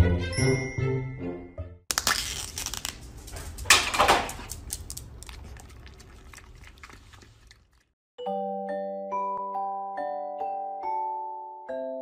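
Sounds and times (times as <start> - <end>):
foil lid crinkling and tearing: 1.9 - 5.3
dog licking a cup: 5.2 - 7.9.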